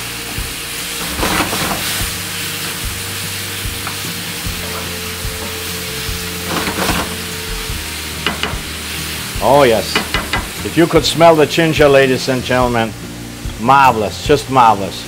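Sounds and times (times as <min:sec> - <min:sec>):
food sizzling in hot oil: 0:00.0 - 0:13.6
wooden spoon scraping a pan: 0:01.0 - 0:02.1, 0:06.4 - 0:07.3.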